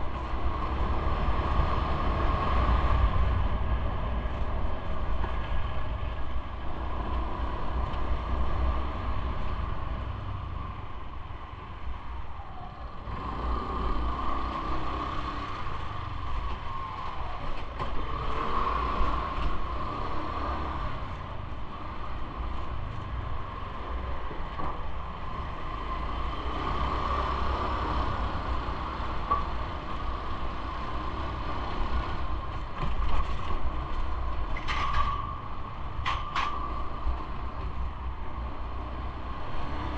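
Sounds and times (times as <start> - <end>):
bike riding rumble: 0.0 - 39.9
bike creaking and rattling: 14.2 - 39.9.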